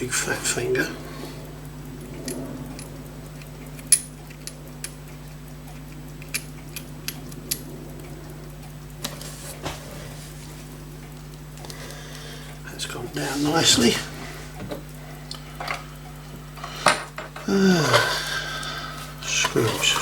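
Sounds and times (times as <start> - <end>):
steady low hum: 0.0 - 20.0
metallic clicks of watch tools: 1.8 - 8.1.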